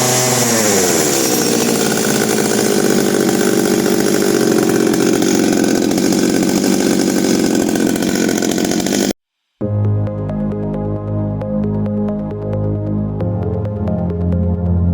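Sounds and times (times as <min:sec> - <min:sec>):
chainsaw engine running: 0:00.0 - 0:09.2.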